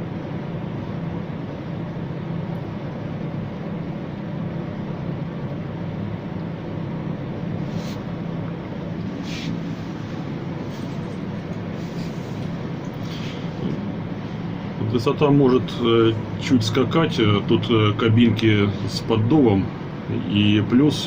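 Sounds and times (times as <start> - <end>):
mechanical hum and drone: 0.0 - 21.0
short hisses: 7.7 - 8.1, 9.2 - 10.1, 13.0 - 13.6.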